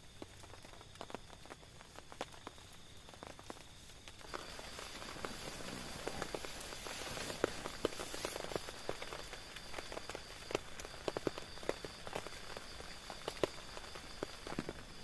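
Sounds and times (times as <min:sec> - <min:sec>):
raindrops tapping on a tent: 0:00.0 - 0:15.0
steady rain hiss: 0:00.0 - 0:15.0.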